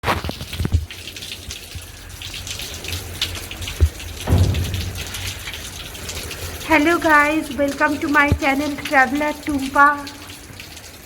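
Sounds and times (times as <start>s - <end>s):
close raindrop hits: 0.0s - 11.0s
heavy rain hiss: 4.2s - 9.8s
low rumble: 4.3s - 6.4s.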